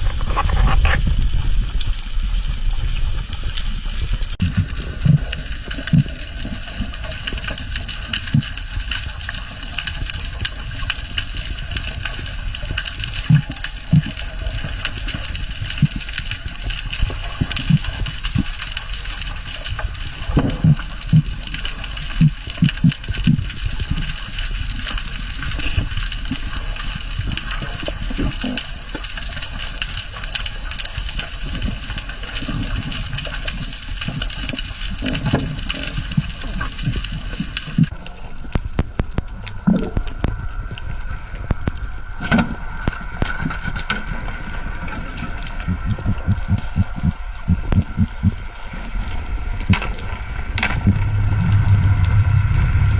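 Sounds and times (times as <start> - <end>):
low rumble: 0.0 - 28.5, 37.6 - 52.9
rushing water: 0.0 - 38.4, 39.4 - 52.9
faint crackling clicks: 0.0 - 48.4
low thumps: 45.6 - 48.4, 50.5 - 52.9.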